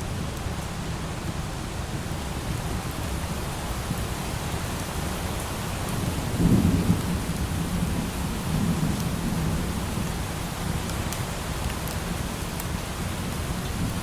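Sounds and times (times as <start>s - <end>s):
light rain hiss: 0.0s - 14.0s
low thunder rumbling: 5.9s - 10.4s.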